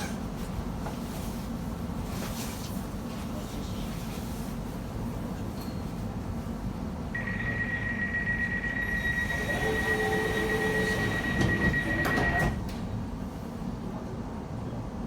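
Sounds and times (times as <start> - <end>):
train rumbling in tunnel: 0.0 - 15.0
high wheel squeal: 8.7 - 12.3.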